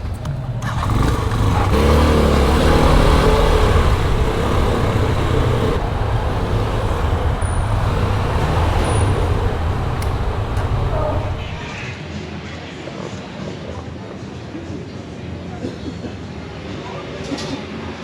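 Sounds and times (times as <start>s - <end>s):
vehicle engine rumbling: 0.0s - 11.7s
road noise: 0.0s - 11.8s.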